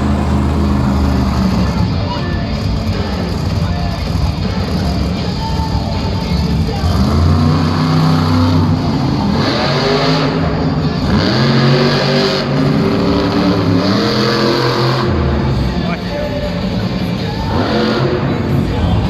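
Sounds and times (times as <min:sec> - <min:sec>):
truck engine revving hard: 0:00.0 - 0:03.5, 0:06.5 - 0:15.9.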